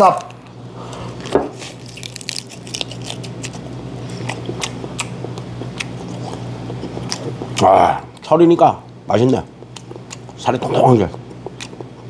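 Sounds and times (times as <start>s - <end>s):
person chewing crab shell: 0.2s - 8.3s, 8.9s - 10.4s, 11.1s - 12.0s.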